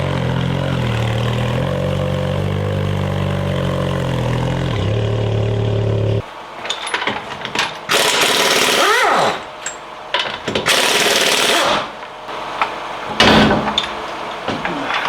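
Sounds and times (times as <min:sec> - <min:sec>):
impact wrench hammering: 0:06.6 - 0:12.1.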